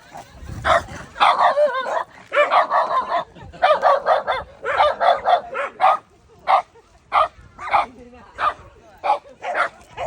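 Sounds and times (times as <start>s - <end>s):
dog yipping and barking: 0.6s - 6.6s.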